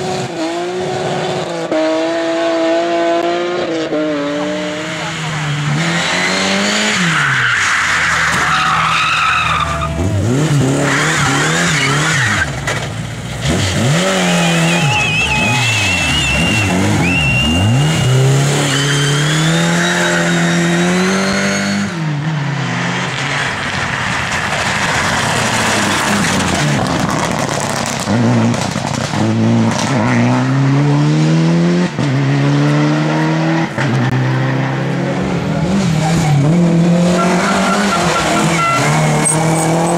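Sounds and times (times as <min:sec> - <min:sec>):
rally car engines revving: 0:00.0 - 0:39.9
tyres squealing: 0:06.9 - 0:10.2, 0:14.0 - 0:20.8.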